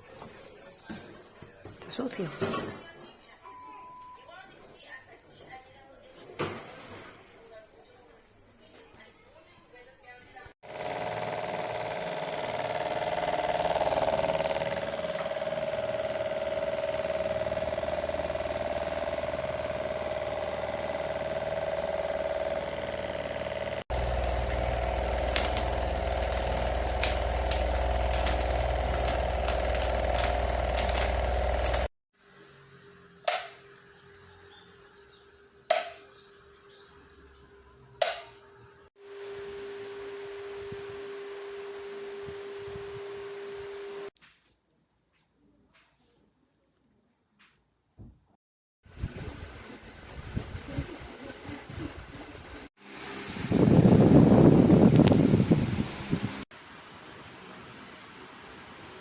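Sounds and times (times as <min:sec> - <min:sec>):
electric fan humming: 0:10.6 - 0:44.1, 0:48.9 - 0:56.4
sharp plastic clicks of fan: 0:33.3 - 0:33.7, 0:35.7 - 0:36.0, 0:38.0 - 0:38.4.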